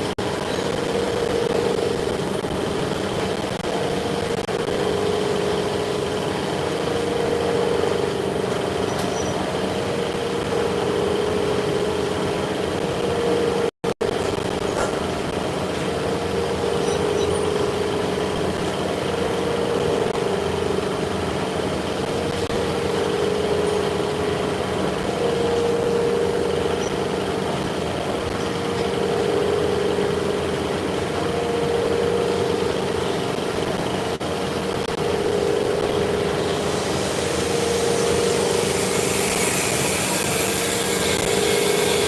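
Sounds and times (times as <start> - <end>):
shop machinery humming: 0.0 - 42.0
mid-pitched tone: 13.0 - 42.0.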